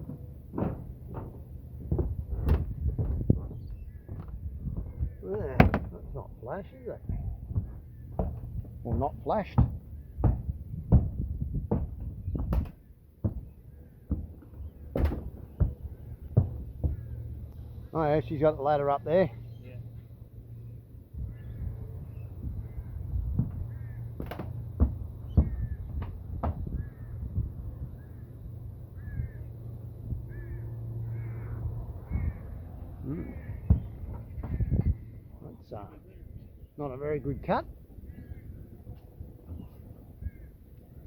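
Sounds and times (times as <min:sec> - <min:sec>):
sharp knocks: 0:00.0 - 0:17.4, 0:23.3 - 0:27.5, 0:33.3 - 0:35.1
footsteps on a metal roof: 0:00.0 - 0:18.5, 0:21.1 - 0:28.0, 0:33.2 - 0:36.6, 0:37.5 - 0:41.0
bird calling: 0:01.9 - 0:10.5, 0:27.9 - 0:41.0.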